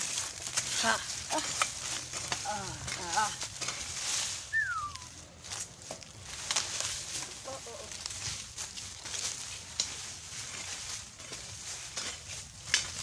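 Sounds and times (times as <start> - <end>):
rustling among plants: 0.0 - 13.0
bird calls: 4.5 - 5.1
falling whistle: 4.5 - 5.1.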